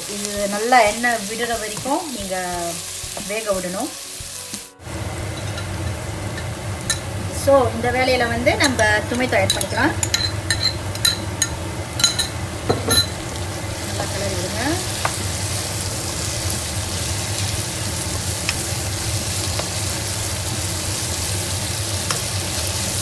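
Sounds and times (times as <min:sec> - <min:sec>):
food sizzling in a pan: 0:00.0 - 0:23.0
wooden spatula stirring: 0:00.3 - 0:04.5
metal spoon clinking: 0:05.3 - 0:07.0, 0:09.5 - 0:13.2.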